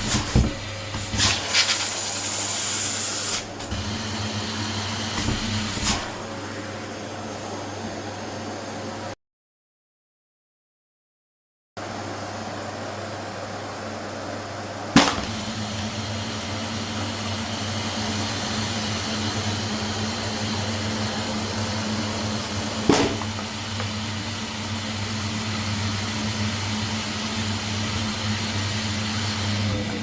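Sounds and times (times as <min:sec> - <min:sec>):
vacuum cleaner running: 0:00.0 - 0:09.1, 0:11.8 - 0:30.0
sharp knocks: 0:15.0 - 0:15.4, 0:22.9 - 0:24.0.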